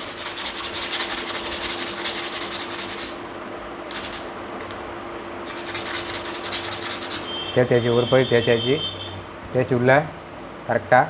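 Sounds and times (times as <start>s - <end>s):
sandpaper rubbing on metal pin: 0.0s - 3.2s, 3.9s - 4.3s, 5.5s - 7.4s.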